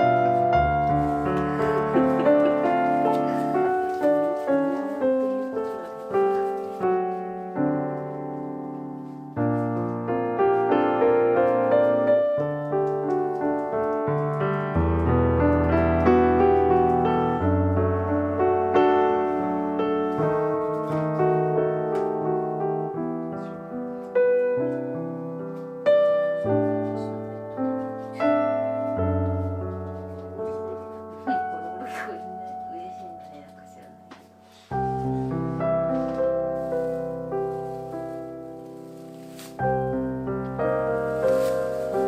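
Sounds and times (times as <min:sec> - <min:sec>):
gentle piano music: 0:00.0 - 0:42.0.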